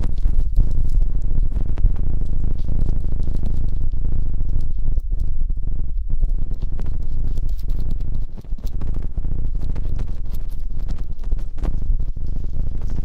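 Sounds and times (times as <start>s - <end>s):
low rumble: 0.0s - 13.0s
small crackles and clicks: 0.0s - 13.0s
close rubbing near microphone: 6.3s - 13.0s.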